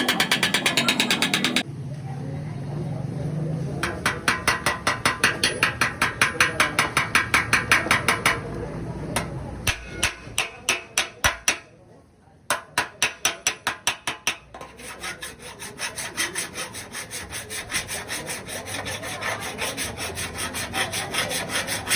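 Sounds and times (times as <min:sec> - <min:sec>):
hammer tapping on sheet metal: 0:00.0 - 0:01.6, 0:03.8 - 0:11.7, 0:12.5 - 0:14.8.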